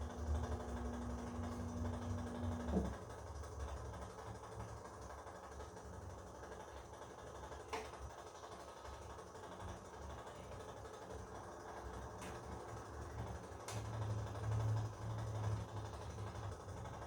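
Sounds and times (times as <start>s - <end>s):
washing machine hum: 0.0s - 17.0s.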